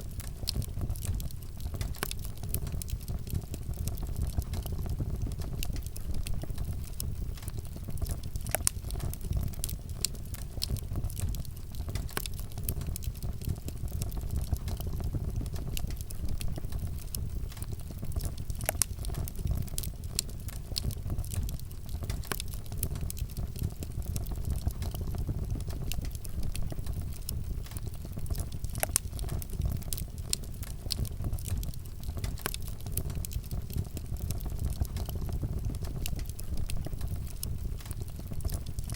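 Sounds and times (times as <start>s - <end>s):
rumble of flames: 0.0s - 38.9s
wood crackling and popping: 0.0s - 38.9s.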